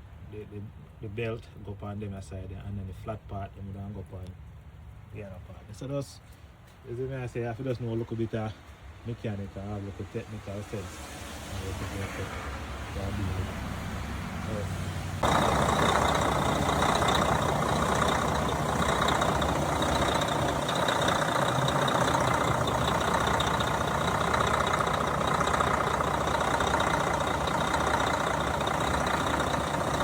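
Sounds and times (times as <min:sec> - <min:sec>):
truck engine idling: 0:15.2 - 0:30.0.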